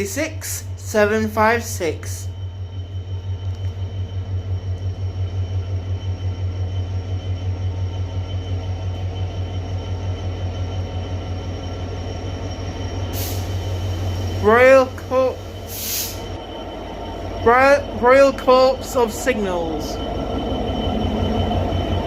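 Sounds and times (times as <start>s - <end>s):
diesel locomotive engine throbbing: 0.0s - 22.0s
short hiss: 13.2s - 13.8s, 15.6s - 16.3s.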